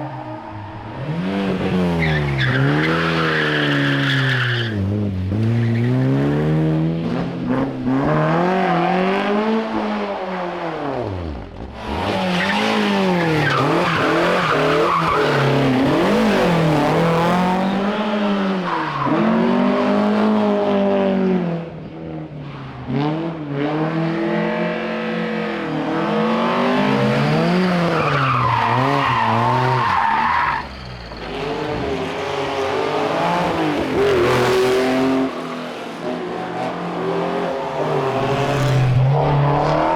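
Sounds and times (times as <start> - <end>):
rally car engines revving: 0.0 - 39.9
tyre squeal: 26.7 - 32.2.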